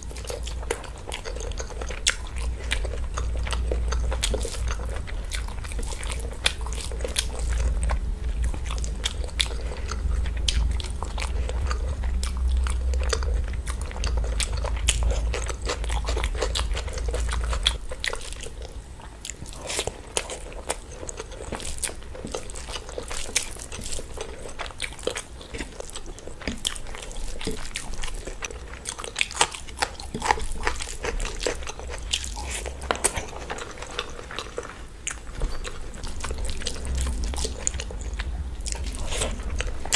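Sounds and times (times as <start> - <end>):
low rumble: 0.0 - 18.7, 30.6 - 39.9
wet chewing and mouth clicks: 0.0 - 39.9.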